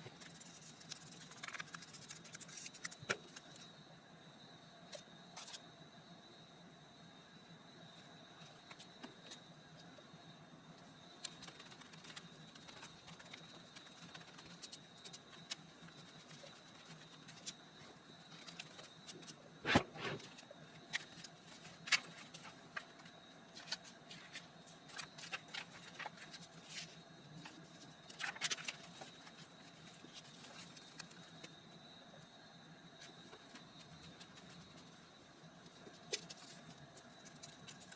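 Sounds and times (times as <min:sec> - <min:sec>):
paper rustling and tapping: 0:00.0 - 0:03.5
faint high whine: 0:00.0 - 0:37.9.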